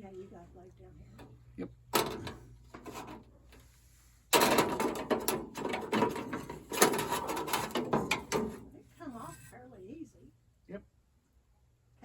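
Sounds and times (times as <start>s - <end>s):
metal knocks: 1.9s - 3.2s, 4.3s - 9.4s
saw blades clattering and scraping: 2.0s - 3.3s, 4.3s - 9.6s.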